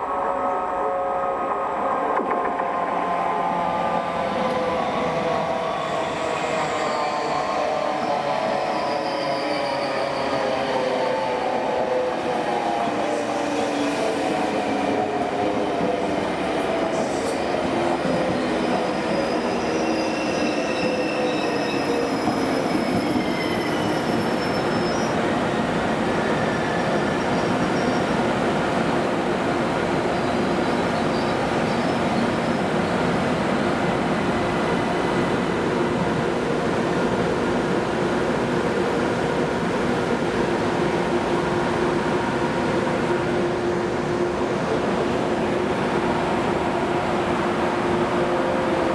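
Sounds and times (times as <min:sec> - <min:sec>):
train wheel squeals: 0:05.9 - 0:10.9, 0:18.1 - 0:25.2, 0:26.3 - 0:28.2.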